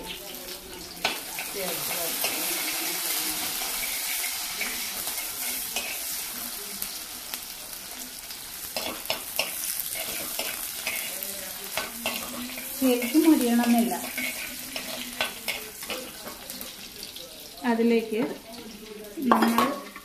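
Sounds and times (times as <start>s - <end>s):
vegetables sizzling in hot oil: 0.0s - 20.0s
steel spoon scraping a pot: 11.8s - 16.2s.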